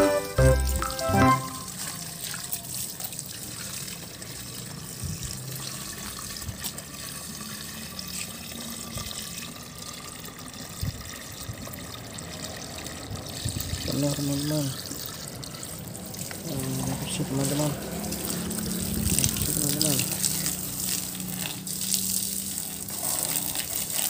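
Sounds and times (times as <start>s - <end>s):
running water splashing: 12.4s - 24.0s.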